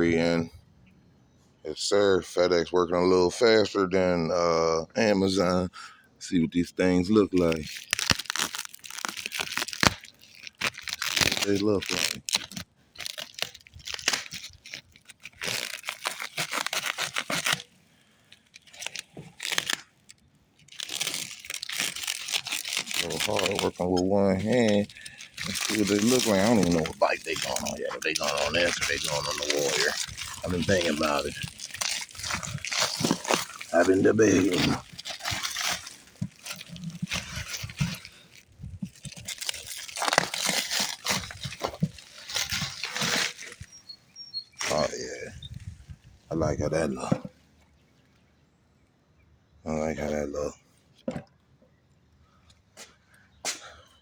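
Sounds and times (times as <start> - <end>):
packaging torn and crinkled: 7.1 - 45.8.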